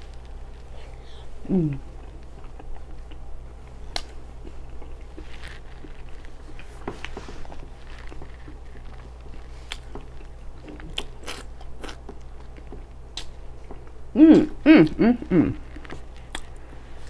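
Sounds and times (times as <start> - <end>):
person chewing fried food: 0.0 - 17.0
wet mouth smacks: 13.1 - 13.4.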